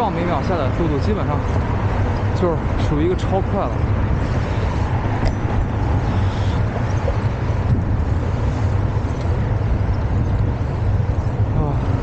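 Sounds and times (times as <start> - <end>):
road and traffic noise: 0.0 - 12.0
wind buffeting microphone: 0.0 - 12.0.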